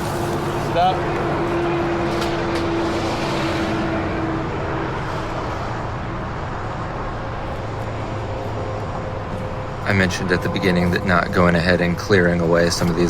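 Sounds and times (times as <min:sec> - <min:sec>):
higher tone: 0:08.2 - 0:13.0.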